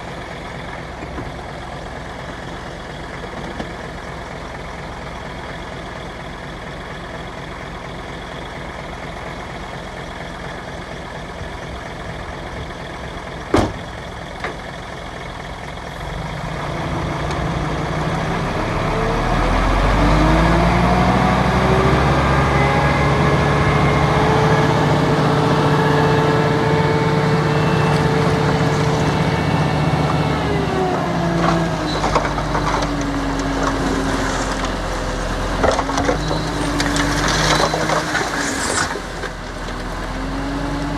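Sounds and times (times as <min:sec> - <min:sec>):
construction machine engine revving: 0:09.8 - 0:40.9
clattering: 0:30.9 - 0:39.4.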